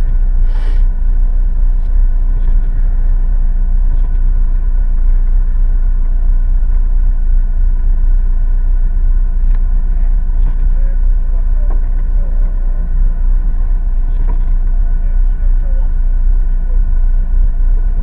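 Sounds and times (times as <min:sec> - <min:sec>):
car engine idling: 0:00.0 - 0:18.0
brief hiss: 0:00.4 - 0:00.9.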